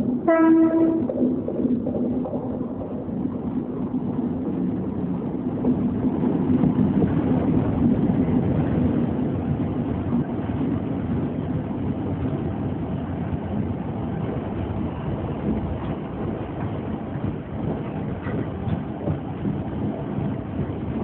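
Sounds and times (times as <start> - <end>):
diesel locomotive passing: 0.0 - 21.0
wagons rolling with rumble: 13.5 - 21.0.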